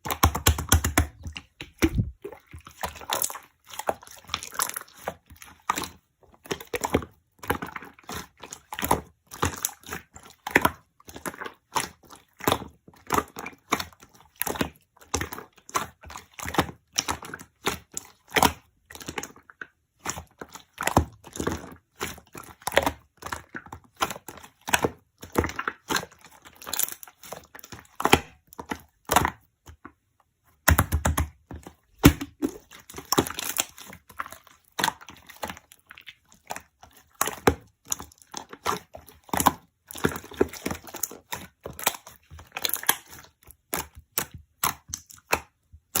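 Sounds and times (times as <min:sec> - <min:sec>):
slime crackling and popping: 0:00.0 - 0:02.2, 0:32.0 - 0:46.0.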